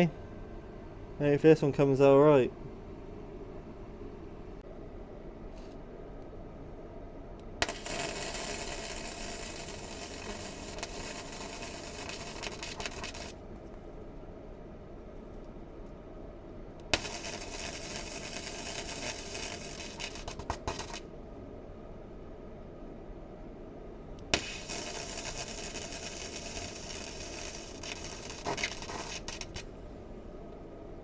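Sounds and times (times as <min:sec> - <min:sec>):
welding arc crackling hiss: 0:07.6 - 0:13.4, 0:16.8 - 0:21.1, 0:24.2 - 0:29.8.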